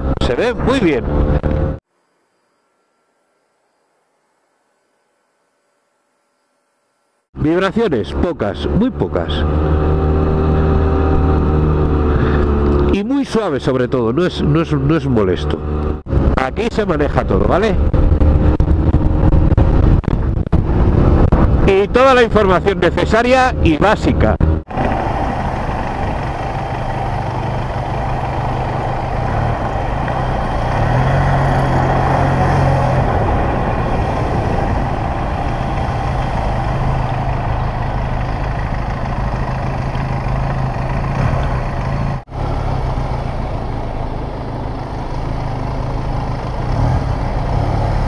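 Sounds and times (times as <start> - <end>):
motorcycle engine running: 15.5 - 21.7, 23.3 - 48.0.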